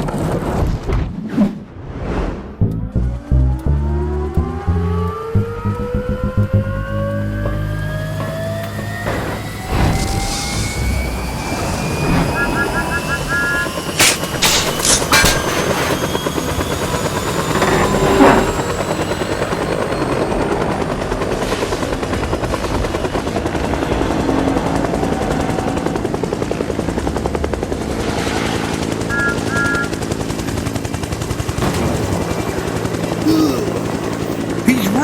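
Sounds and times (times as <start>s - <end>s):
helicopter rotor chopping: 2.8s - 35.0s
short high beeps: 29.1s - 30.0s.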